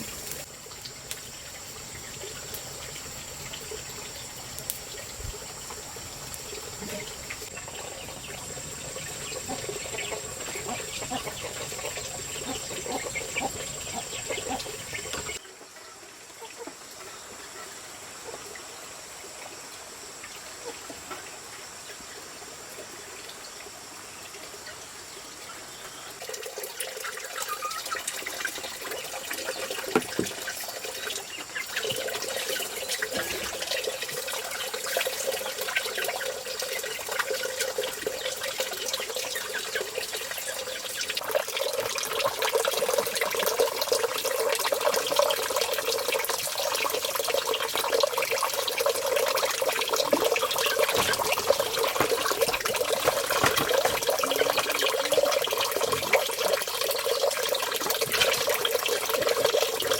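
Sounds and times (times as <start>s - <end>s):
running splashing water: 26.2s - 59.9s.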